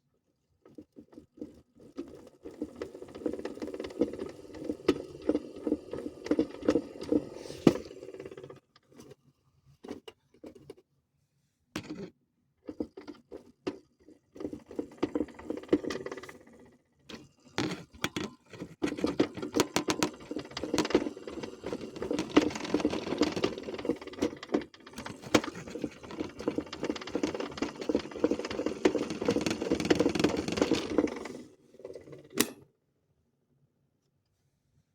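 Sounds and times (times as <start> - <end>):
toy washing machine rattling: 0.7 - 9.2, 12.7 - 32.4.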